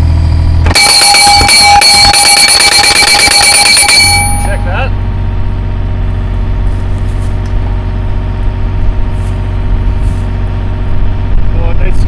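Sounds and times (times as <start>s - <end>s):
excavator engine running: 0.0s - 12.0s
held tones: 0.6s - 5.0s.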